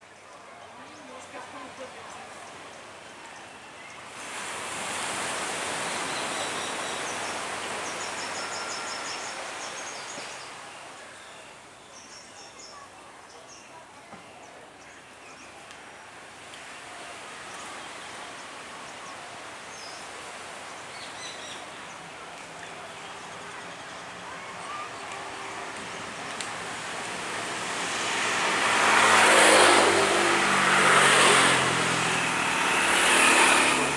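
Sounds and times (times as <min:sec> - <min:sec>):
vehicles passing: 0:16.5 - 0:33.9.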